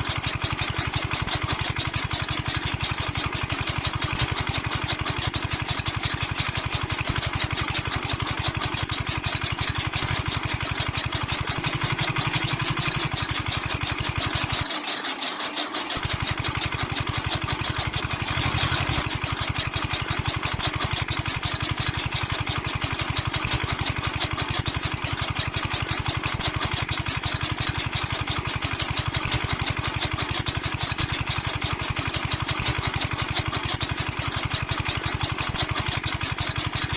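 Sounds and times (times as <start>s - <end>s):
small toy motor buzzing: 17.7s - 19.2s.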